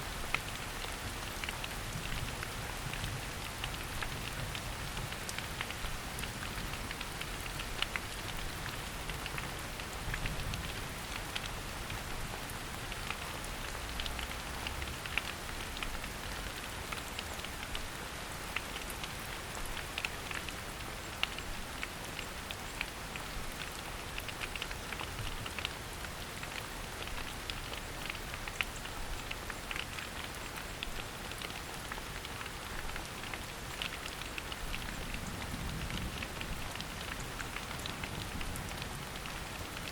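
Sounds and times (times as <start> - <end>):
rain hissing in forest: 0.0 - 39.9
raindrops ticking: 0.1 - 39.9.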